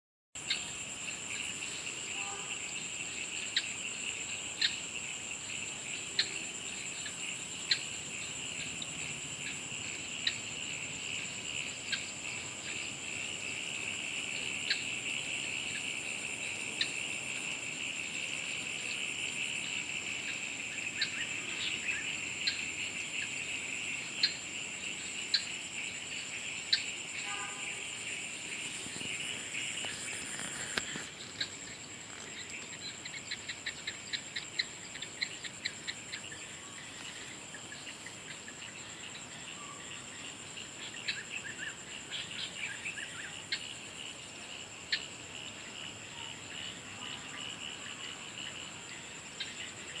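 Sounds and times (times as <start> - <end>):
short sharp insect chirps: 25.3 - 39.9.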